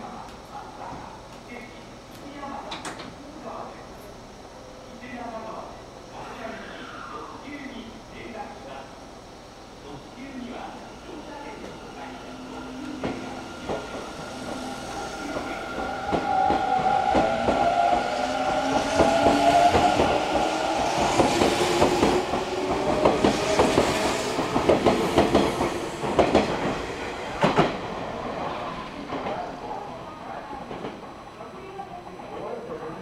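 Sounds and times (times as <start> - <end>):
train whine sliding down in pitch: 11.1 - 29.0.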